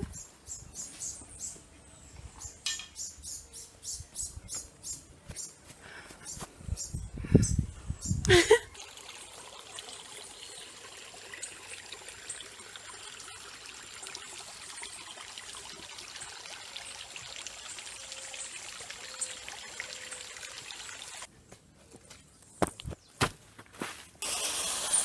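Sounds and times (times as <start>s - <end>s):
running water trickling: 8.3s - 21.3s.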